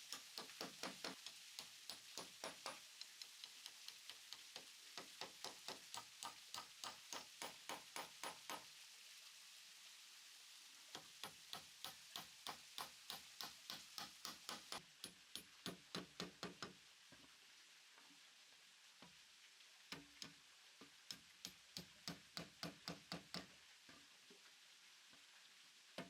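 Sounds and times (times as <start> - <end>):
hand tool tapping wood: 0.0 - 8.6, 11.0 - 16.8, 21.1 - 23.5.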